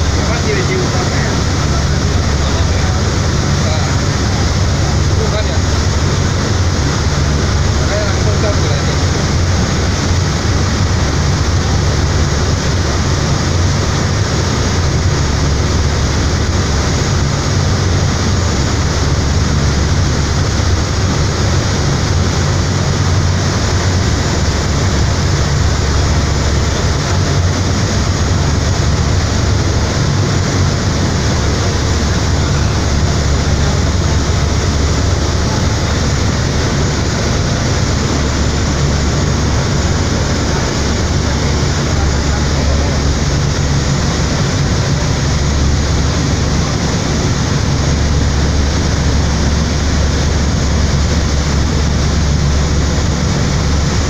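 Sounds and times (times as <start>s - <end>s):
ferry engines droning: 0.0s - 54.0s
rush of noise: 0.0s - 54.0s.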